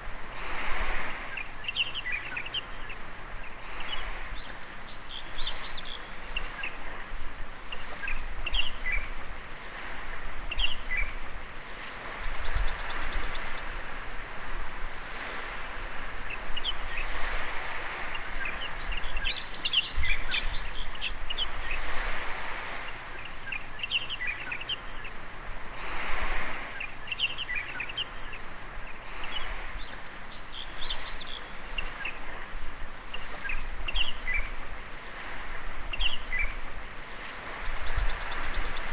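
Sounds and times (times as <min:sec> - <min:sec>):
small waves washing on shore: 0:00.0 - 0:38.9
birds chirping and calling: 0:12.1 - 0:14.0, 0:18.1 - 0:21.9, 0:26.8 - 0:32.4, 0:33.1 - 0:34.6, 0:37.5 - 0:38.9.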